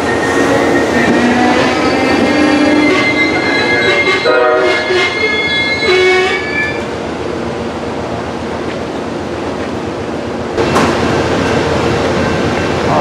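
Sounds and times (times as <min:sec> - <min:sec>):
train wheels squealing on rail: 0:00.0 - 0:07.0
train cars rumbling and rattling: 0:00.0 - 0:13.0.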